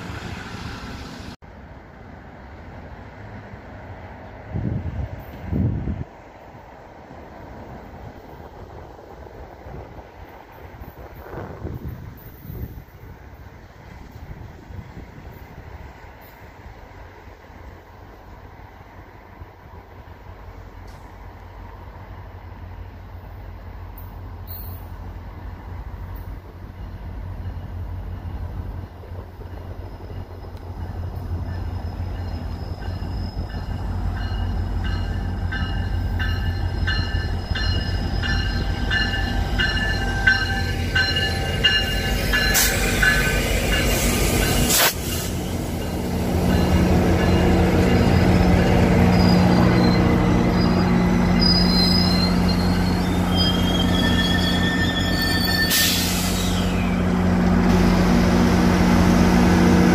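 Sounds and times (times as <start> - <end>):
train running on rails: 0.0 - 59.9
wheels squealing on rails: 23.9 - 59.9.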